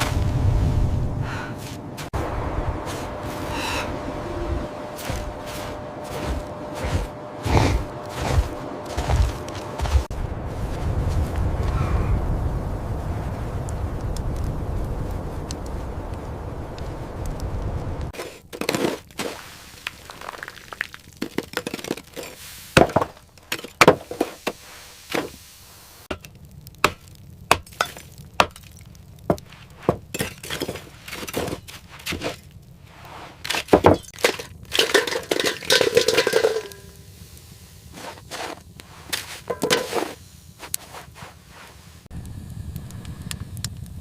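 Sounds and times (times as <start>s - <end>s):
scraping: 26.1s - 37.2s, 37.8s - 42.1s
hard objects knocking and clinking: 33.7s - 36.8s.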